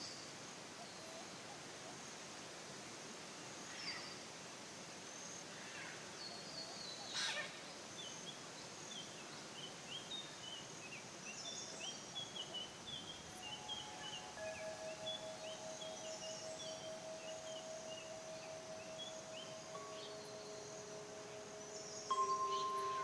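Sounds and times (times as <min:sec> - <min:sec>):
steady background hiss: 0:00.0 - 0:23.0
songbirds chirping: 0:05.1 - 0:23.0
steady ringing tone: 0:13.2 - 0:23.0.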